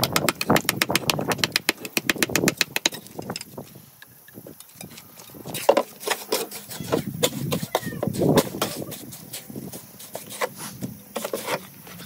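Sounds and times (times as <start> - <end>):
hand tool tapping on stone: 0.0 - 3.5.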